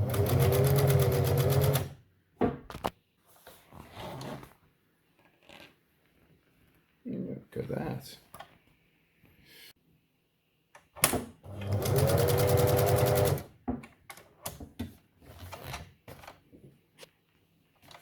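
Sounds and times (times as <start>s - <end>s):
sewing machine stitching: 0.0s - 2.0s, 11.4s - 13.5s.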